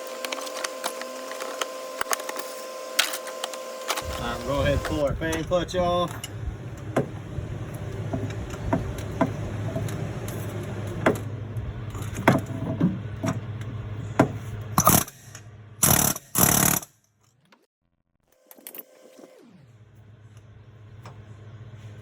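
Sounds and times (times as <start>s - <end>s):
metal tools clanking: 0.1s - 6.4s
low hum: 19.0s - 22.0s.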